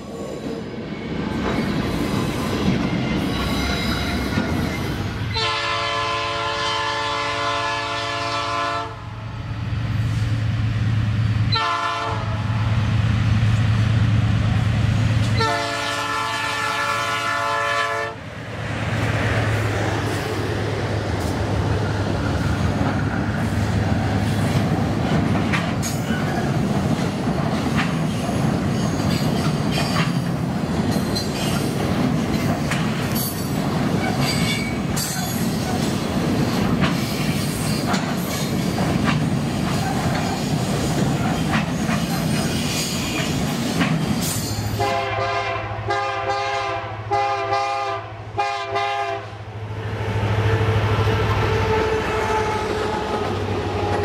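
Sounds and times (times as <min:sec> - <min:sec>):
train rumbling past: 0:00.0 - 0:54.0
train air horn chord: 0:05.3 - 0:09.1, 0:11.6 - 0:12.5, 0:15.4 - 0:18.2, 0:44.8 - 0:49.4, 0:50.2 - 0:53.1
wheels clicking over rail joints: 0:24.2 - 0:44.8.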